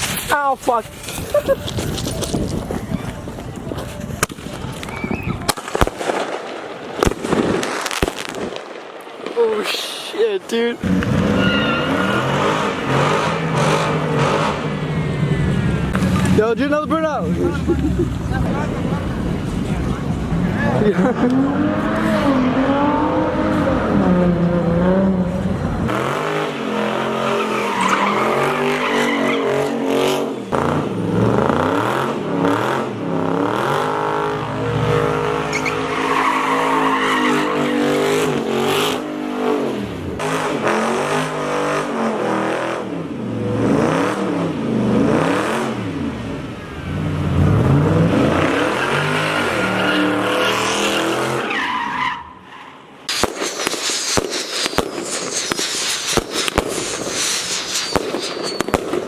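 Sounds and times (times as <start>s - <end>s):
car engine revving: 10.8s - 52.1s
tires squealing: 10.8s - 53.1s.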